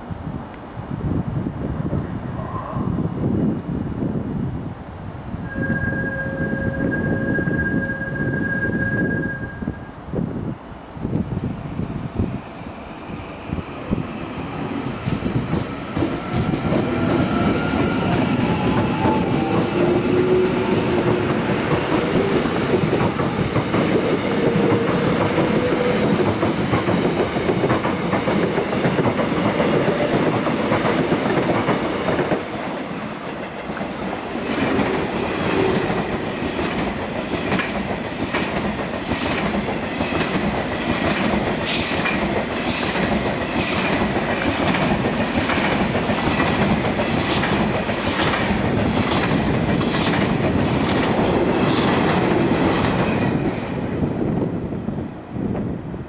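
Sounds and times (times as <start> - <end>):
electric train rumbling: 0.0 - 56.0
train wheels clacking over rail joints: 15.1 - 32.5, 34.6 - 53.2.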